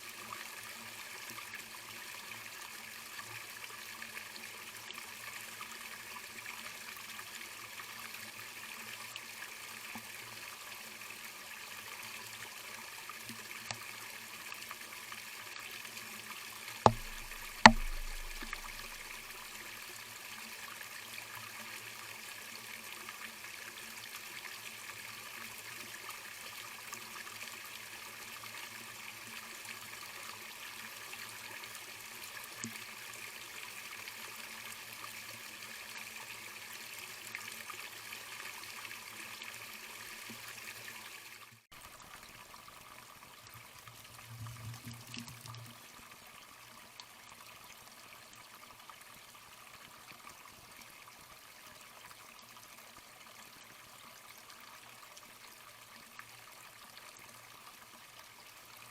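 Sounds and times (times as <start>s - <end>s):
low thud: 16.9s - 19.2s
sharp knocks: 16.9s - 19.2s
trickling running water: 16.9s - 19.8s.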